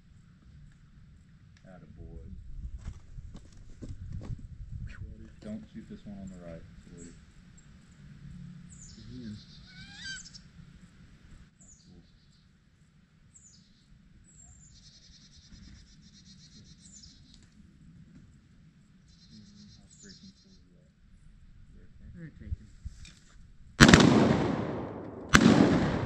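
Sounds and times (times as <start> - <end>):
birds whistling and trilling: 8.7 - 10.5, 13.3 - 17.5, 19.0 - 20.8.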